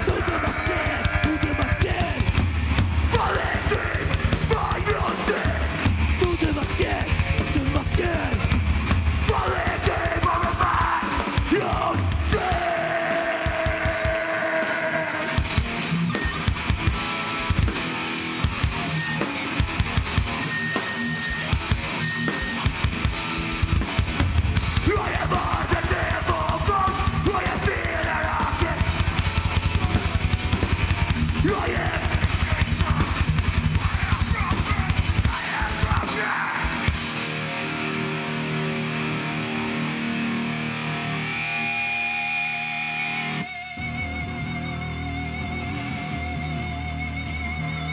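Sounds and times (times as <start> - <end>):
fast dense drumming: 0.0 - 37.5
distorted guitar: 0.0 - 47.9.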